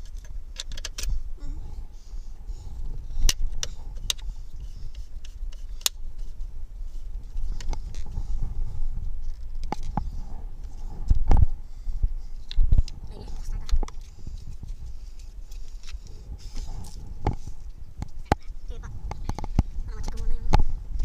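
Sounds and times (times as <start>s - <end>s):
low rumble: 6.4s - 21.0s.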